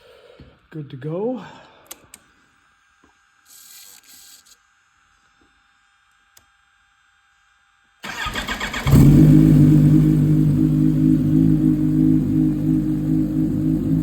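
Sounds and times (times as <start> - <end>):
electric starter cranking: 8.0 - 9.7
motorcycle engine idling: 8.1 - 14.0.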